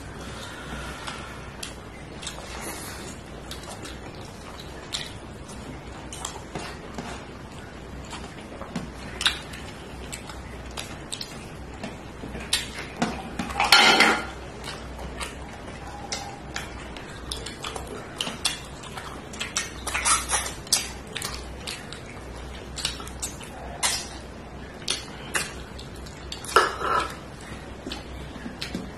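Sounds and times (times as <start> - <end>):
cutlery clinking and scraping plate: 13.4 - 14.4, 26.5 - 27.2.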